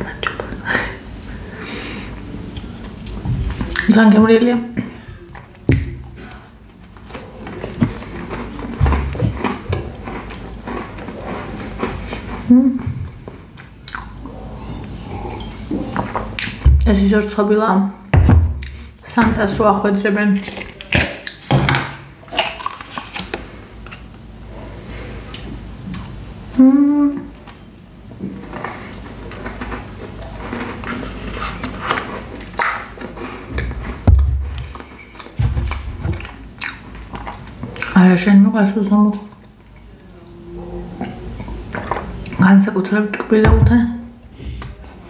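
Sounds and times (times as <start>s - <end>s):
chewing: 2.1s - 3.9s, 4.8s - 16.6s, 22.3s - 24.1s, 28.3s - 38.0s, 39.2s - 42.4s
dull thump: 18.1s - 18.6s.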